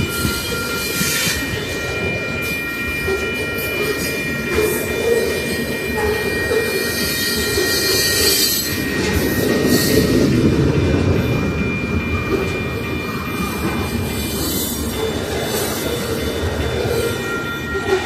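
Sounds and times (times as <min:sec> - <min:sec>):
high wheel squeal: 0:00.0 - 0:18.0
train wheels rumbling on rail: 0:00.0 - 0:18.0.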